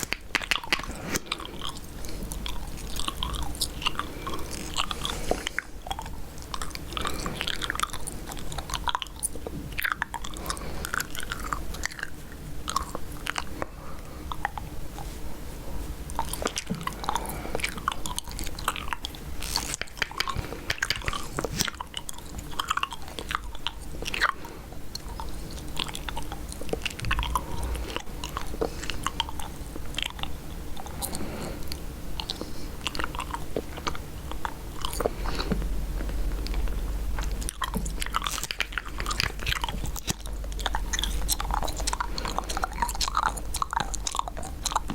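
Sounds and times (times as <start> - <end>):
gum chewing smacks: 0.0 - 15.2, 15.9 - 44.9.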